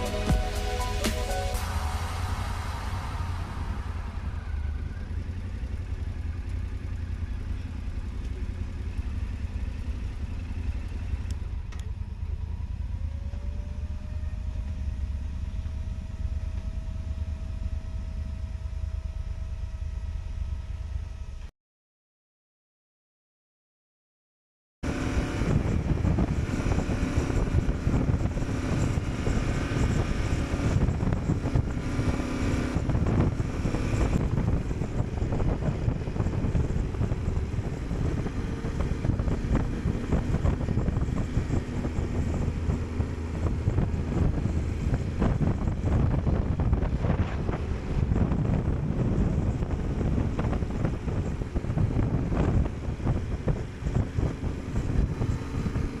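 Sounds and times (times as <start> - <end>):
motorcycle engine drone: 0.0 - 21.5, 24.8 - 56.0
wind rush on microphone: 24.9 - 56.0.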